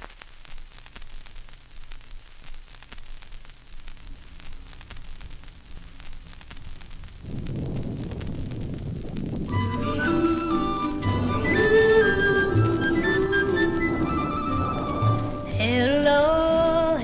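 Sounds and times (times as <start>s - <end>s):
wind hiss on microphone: 0.0s - 17.0s
bike rolling rumble: 7.2s - 17.0s.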